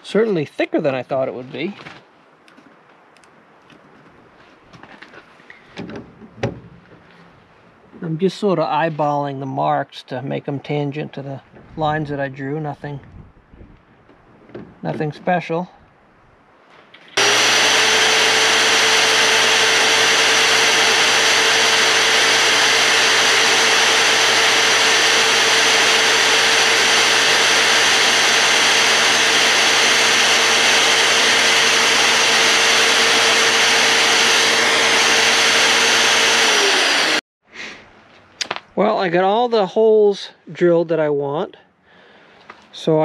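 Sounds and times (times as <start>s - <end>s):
drill motor whine: 17.2s - 37.2s.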